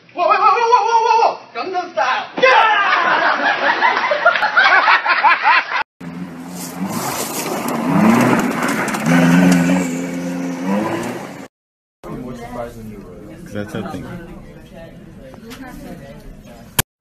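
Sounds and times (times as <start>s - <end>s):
excited voices: 2.0s - 3.4s
sports car engine running: 6.0s - 11.4s.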